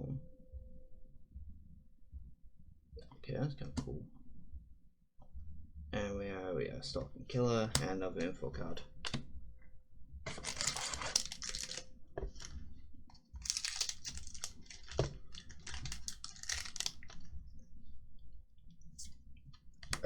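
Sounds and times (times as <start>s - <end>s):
foil wrapper tearing and crinkling: 10.3s - 12.5s, 13.4s - 17.2s.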